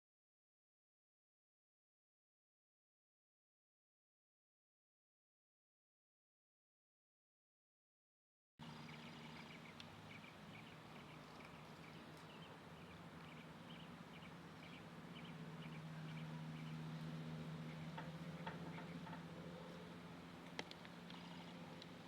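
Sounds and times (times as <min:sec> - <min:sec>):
small birds chirping: 0:08.6 - 0:22.0
steady low hum: 0:08.6 - 0:22.0.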